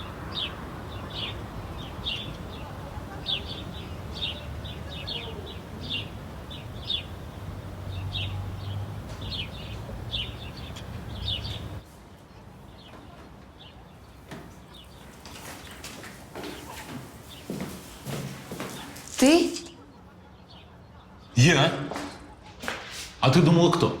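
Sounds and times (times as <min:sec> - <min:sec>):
small bird chirping: 0:00.0 - 0:11.8.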